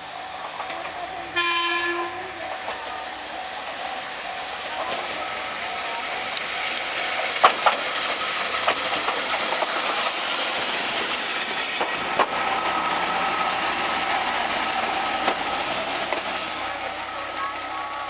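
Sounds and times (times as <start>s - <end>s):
diesel railcar passing: 0.0s - 18.0s
wheels clicking over rail joints: 5.8s - 17.9s.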